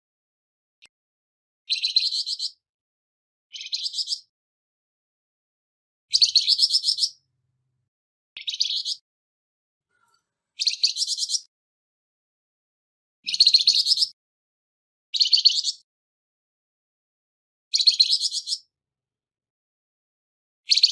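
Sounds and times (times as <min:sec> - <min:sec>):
songbird buzzy rasping song: 0:01.7 - 0:02.6, 0:03.5 - 0:04.3, 0:06.1 - 0:07.3, 0:08.4 - 0:09.0, 0:09.9 - 0:11.5, 0:13.2 - 0:14.2.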